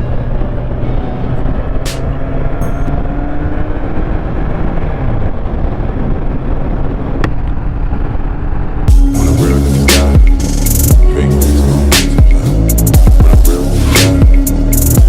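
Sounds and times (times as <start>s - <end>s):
wind noise on microphone: 0.0s - 9.2s.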